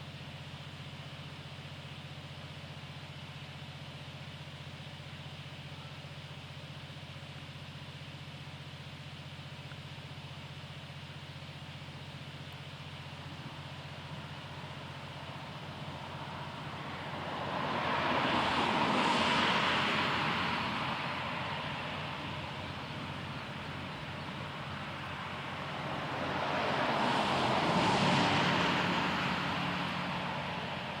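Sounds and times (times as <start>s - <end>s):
vehicles passing with tyre hiss: 11.8s - 31.0s.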